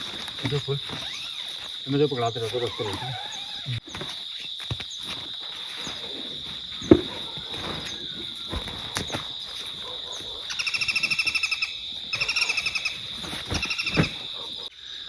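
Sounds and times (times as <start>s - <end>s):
bird trilling: 0.0s - 2.0s, 10.2s - 14.5s
high-pitched insect drone: 0.0s - 6.6s, 10.2s - 15.0s
single thump: 6.8s - 7.4s.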